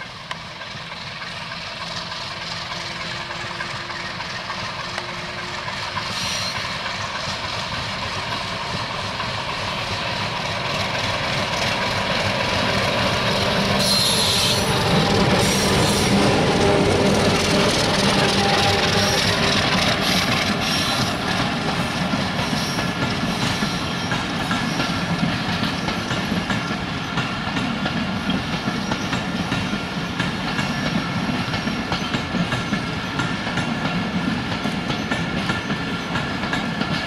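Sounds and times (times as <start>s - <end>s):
train running on rails: 0.0s - 37.0s
wheel squeals: 2.6s - 6.8s, 13.8s - 21.4s.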